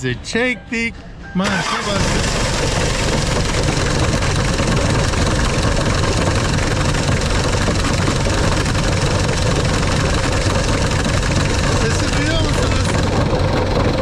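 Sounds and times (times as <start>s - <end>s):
car engine idling: 1.6s - 14.0s
water pump rattling clatter: 2.0s - 14.0s.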